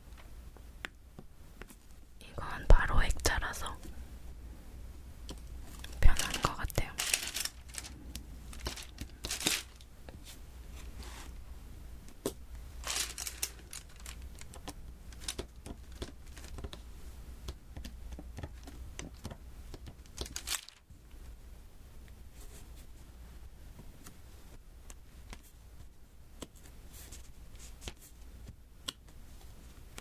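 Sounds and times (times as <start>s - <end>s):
crinkling rustling: 5.6s - 11.4s, 12.8s - 16.8s, 18.4s - 20.9s.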